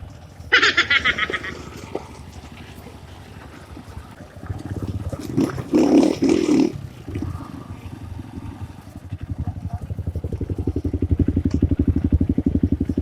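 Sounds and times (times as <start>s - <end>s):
motorcycle engine chugging: 0.0s - 13.0s.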